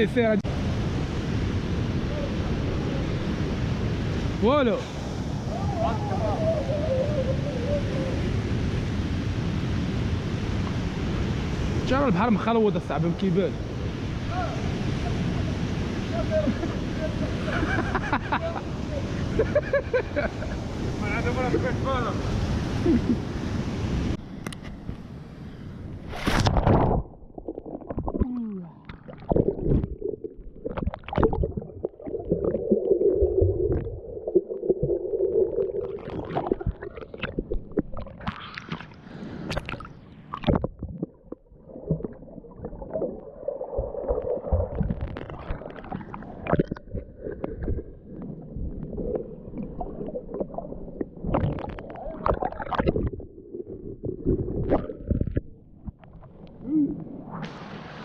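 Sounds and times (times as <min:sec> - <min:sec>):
sea water gurgling and sloshing: 0:00.4 - 0:58.0
bubbly splashes: 0:26.2 - 0:56.4.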